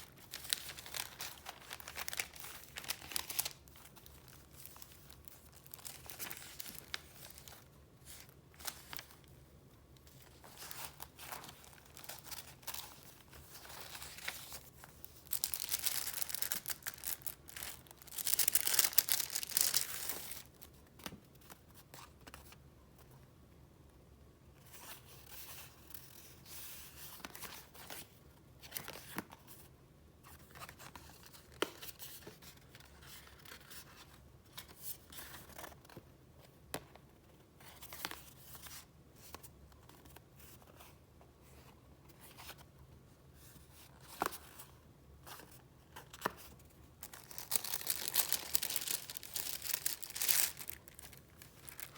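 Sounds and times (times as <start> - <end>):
paper rustling and crinkling: 0.0 - 9.3, 10.0 - 22.6, 43.5 - 51.9.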